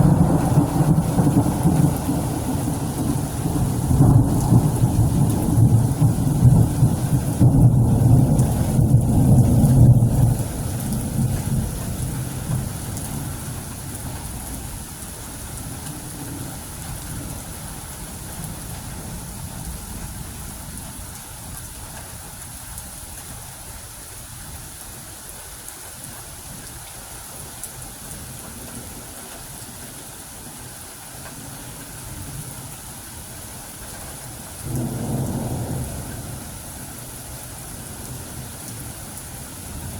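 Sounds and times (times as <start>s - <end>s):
thunder rumbling: 0.0s - 14.8s, 34.6s - 39.9s
steady rain: 0.0s - 39.9s.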